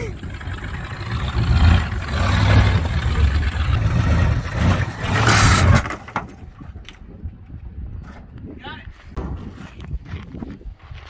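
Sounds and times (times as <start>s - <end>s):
truck engine revving hard: 0.0s - 6.1s.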